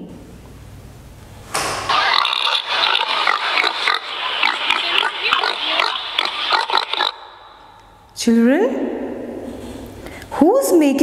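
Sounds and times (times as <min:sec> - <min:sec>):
pigs grunting: 0:01.9 - 0:07.8.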